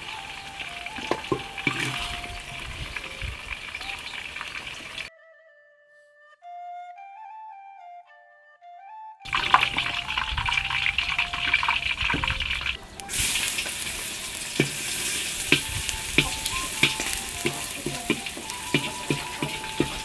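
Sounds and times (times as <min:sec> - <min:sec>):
chicken sizzling in a pan: 0:00.0 - 0:05.1, 0:09.3 - 0:20.0
utensil clicking against pan: 0:00.0 - 0:05.1, 0:09.3 - 0:20.0.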